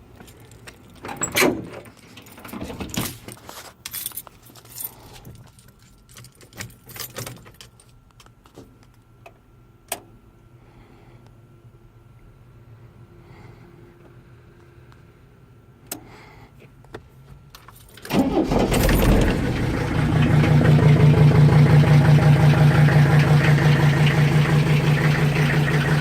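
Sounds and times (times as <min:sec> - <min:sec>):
keys jangling: 0:02.3 - 0:08.0.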